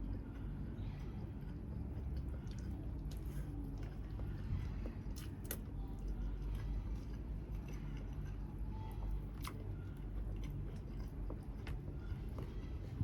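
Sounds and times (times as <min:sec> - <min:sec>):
chewing chicken close up: 0:00.0 - 0:13.0
low steady hum: 0:00.0 - 0:13.0.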